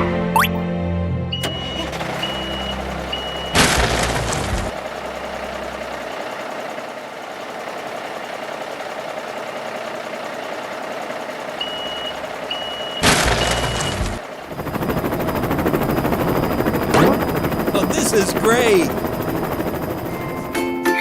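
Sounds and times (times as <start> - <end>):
reversing alarm beeps: 1.3 - 3.8, 11.6 - 17.9
vehicle engine running: 1.3 - 20.7
loud burst of noise: 1.5 - 8.5, 9.1 - 14.2.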